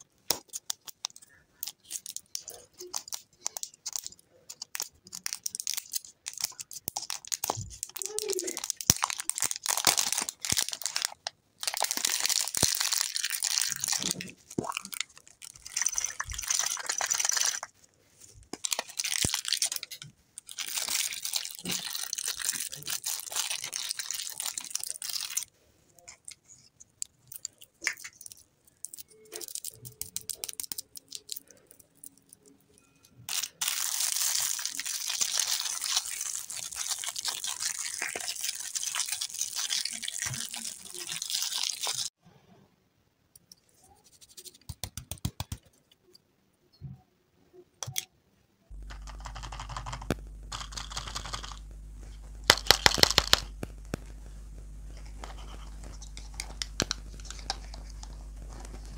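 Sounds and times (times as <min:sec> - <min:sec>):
plastic shells clicking: 0:00.3 - 0:14.0, 0:27.0 - 0:32.6, 0:52.5 - 0:53.5
plastic packaging crinkling: 0:00.3 - 0:32.6, 0:33.3 - 0:42.1, 0:48.7 - 0:58.9.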